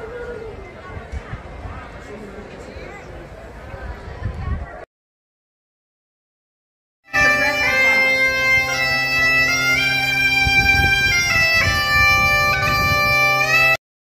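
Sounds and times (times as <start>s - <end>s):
bagpipe melody over drone: 7.1s - 13.8s.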